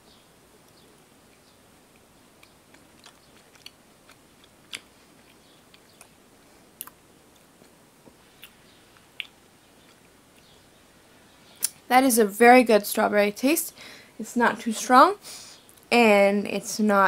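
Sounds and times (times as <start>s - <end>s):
person chewing soft candy: 1.3s - 10.6s
mouth clicks and smacks: 2.0s - 6.2s, 6.8s - 10.6s, 11.6s - 11.8s.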